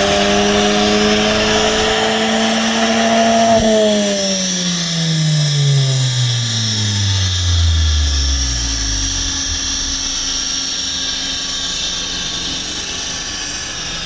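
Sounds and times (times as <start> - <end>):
car engine revving under load: 5.4 - 11.0.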